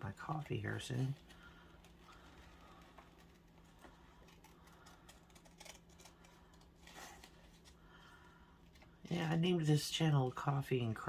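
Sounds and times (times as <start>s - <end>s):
paper rustling: 0.2s - 9.6s
scissors snipping paper: 3.2s - 7.7s.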